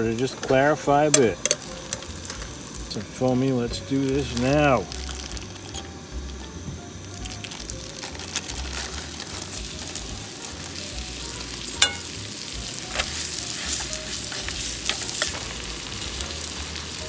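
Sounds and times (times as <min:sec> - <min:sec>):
chicken sizzling in butter: 0:00.0 - 0:17.0
crackling pops: 0:00.1 - 0:11.0.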